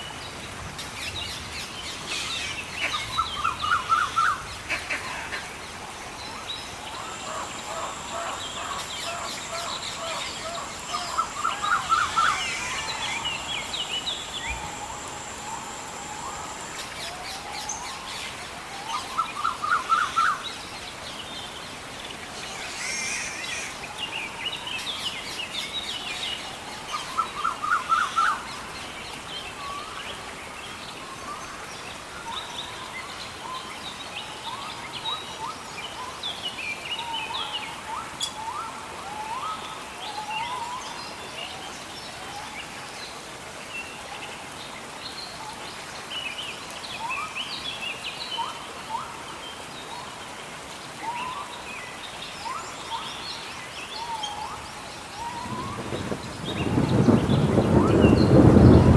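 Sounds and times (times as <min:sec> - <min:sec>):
background hiss: 0:00.0 - 0:58.9
birds calling and chirping: 0:00.3 - 0:20.4, 0:51.0 - 0:58.9.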